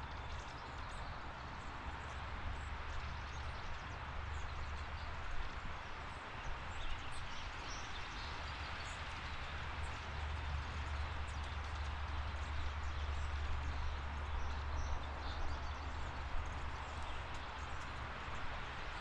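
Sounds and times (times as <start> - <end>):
low outdoor rumble: 7.4 - 19.0.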